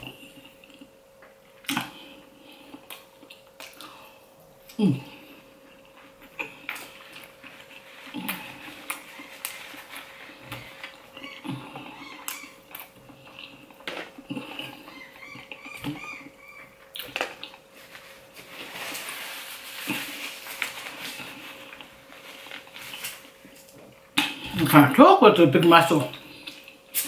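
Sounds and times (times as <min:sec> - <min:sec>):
wet chewing and smacking: 0:05.8 - 0:17.7.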